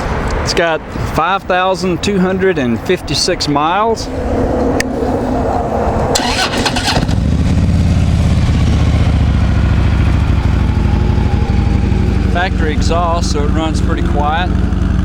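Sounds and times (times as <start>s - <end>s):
motorcycle starter cranking: 6.2s - 7.5s
motorcycle engine idling: 6.2s - 15.0s.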